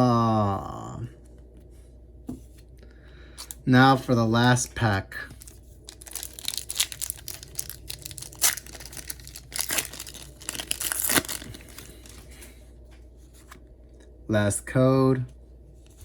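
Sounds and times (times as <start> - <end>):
foil wrapper tearing and crinkling: 5.4 - 12.3.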